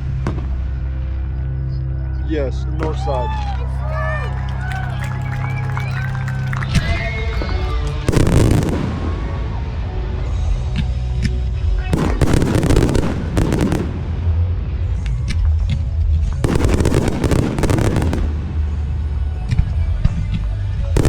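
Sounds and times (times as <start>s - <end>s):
faint music: 0.0s - 21.0s
fireworks crackling: 4.6s - 9.8s, 12.0s - 15.6s, 16.2s - 19.7s
deep fireworks booming: 8.0s - 10.4s, 11.9s - 20.2s.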